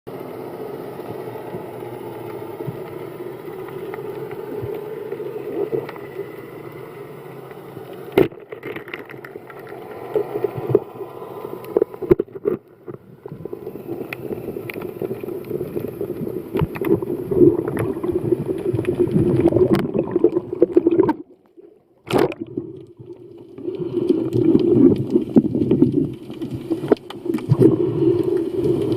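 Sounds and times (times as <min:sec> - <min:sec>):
muffled underwater water noise: 0:00.1 - 0:28.9
underwater clicks and crackles: 0:00.1 - 0:28.9.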